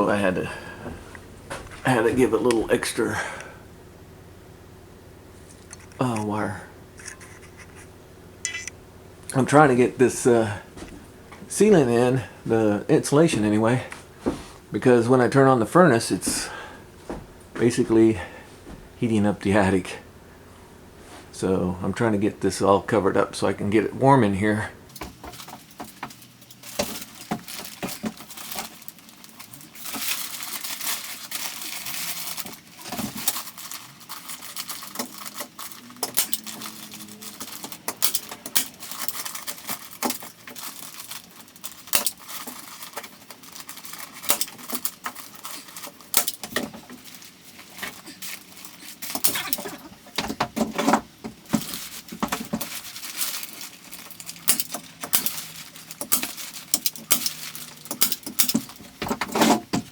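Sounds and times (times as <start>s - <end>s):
sharp clicks and taps: 7.0s - 9.4s
insulation rustling and tearing: 24.9s - 59.9s.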